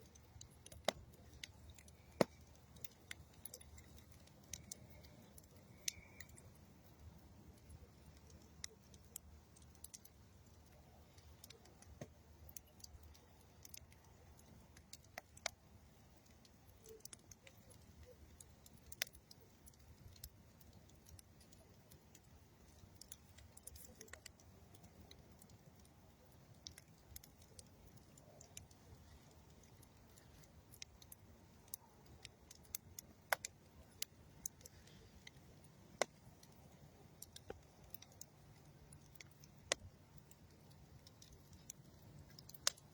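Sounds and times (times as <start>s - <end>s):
campfire crackling: 0.0s - 42.9s.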